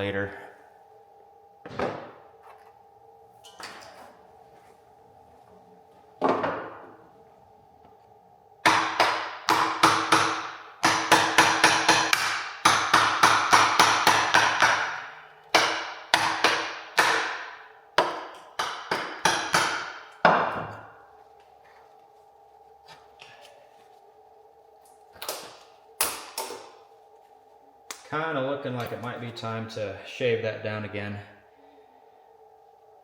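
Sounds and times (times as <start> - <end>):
hammer striking plastic chisel: 8.7 - 20.7.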